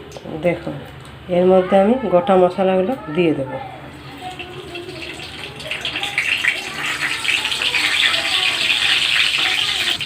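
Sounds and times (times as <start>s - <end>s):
hot oil sizzling and spattering: 4.0s - 10.0s.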